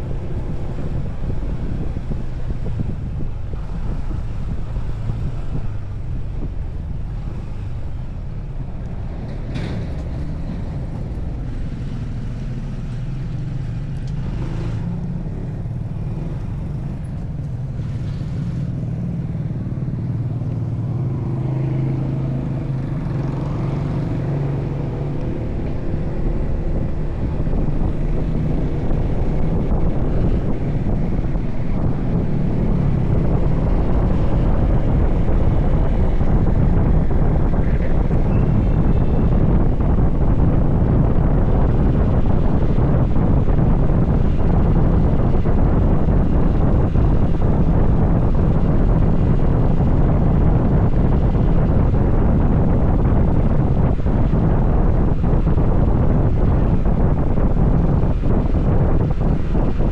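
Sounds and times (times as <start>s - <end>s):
motorcycle engine droning: 0.0s - 59.9s
road noise: 0.0s - 59.9s.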